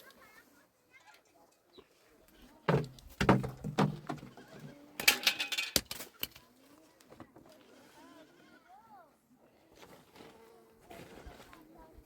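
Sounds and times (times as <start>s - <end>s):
sharp knocks: 2.7s - 4.4s.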